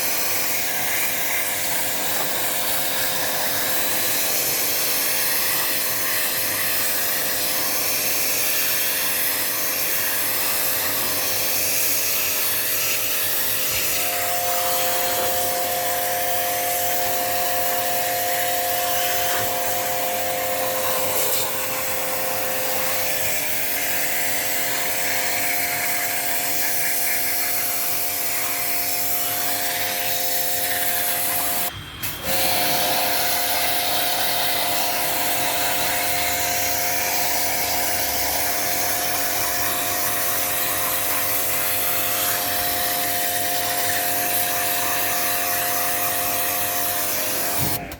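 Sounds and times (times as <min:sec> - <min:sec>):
electric motor running: 0:00.0 - 0:47.9.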